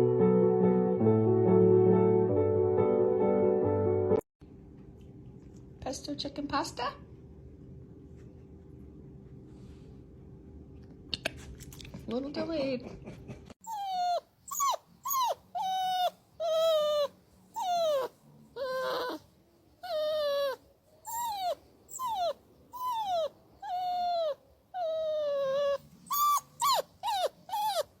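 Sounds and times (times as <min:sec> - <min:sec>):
dog whining: 0:13.6 - 0:28.0.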